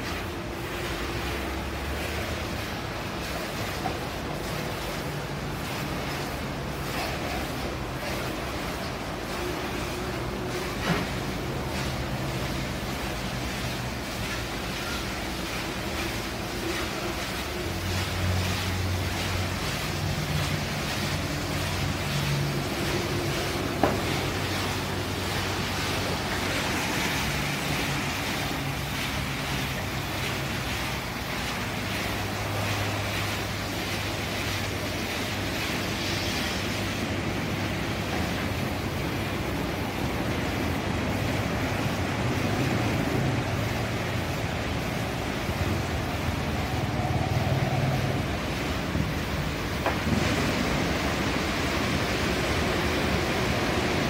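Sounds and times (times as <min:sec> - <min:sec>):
spraying water hiss: 0:00.0 - 0:54.0.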